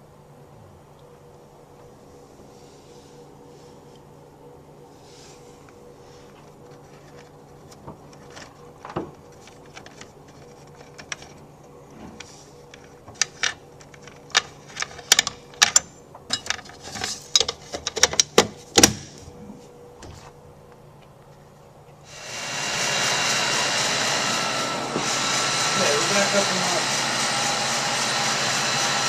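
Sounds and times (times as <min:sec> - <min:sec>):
refrigeration equipment hum: 0:00.0 - 0:29.0.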